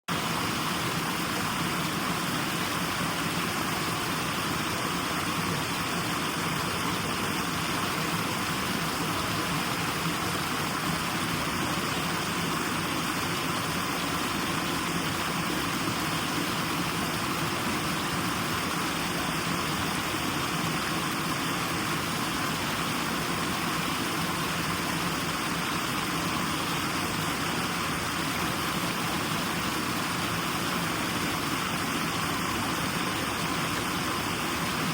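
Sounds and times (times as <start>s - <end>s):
white noise hiss: 0.1s - 34.9s.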